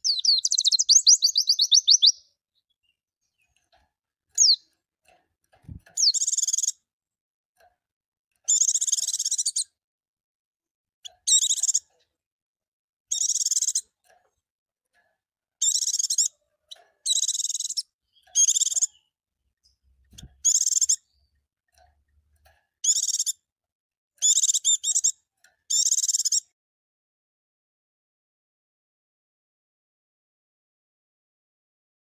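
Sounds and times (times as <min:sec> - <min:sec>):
white-eye twittering song: 0:00.0 - 0:02.8, 0:04.4 - 0:04.6, 0:13.1 - 0:13.9, 0:15.6 - 0:16.4, 0:17.1 - 0:19.1, 0:20.4 - 0:21.2.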